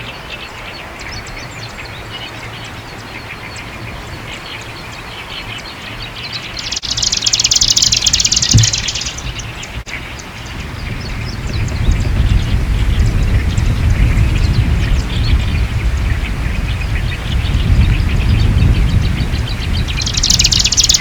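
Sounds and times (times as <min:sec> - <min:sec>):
low wind rumble: 0:00.0 - 0:21.0
faint bird chirps: 0:04.4 - 0:12.5, 0:13.1 - 0:21.0
bird rattling song: 0:04.4 - 0:21.0.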